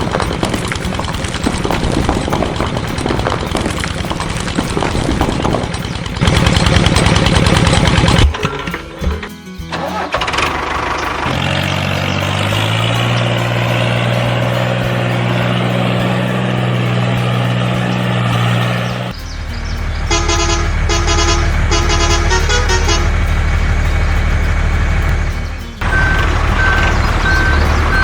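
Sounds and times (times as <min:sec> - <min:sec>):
truck engine running: 0:00.0 - 0:28.0
quick electronic beeping: 0:25.3 - 0:28.0.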